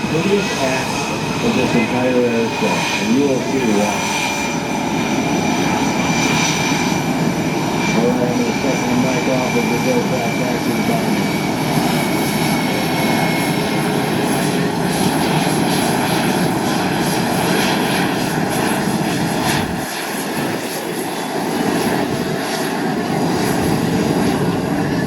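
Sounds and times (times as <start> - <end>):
aerobatic aircraft engine: 0.0 - 25.0.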